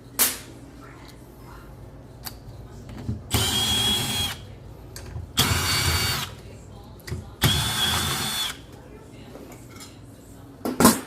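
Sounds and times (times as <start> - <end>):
cordless drill driving screws: 3.3 - 4.4, 7.4 - 8.6.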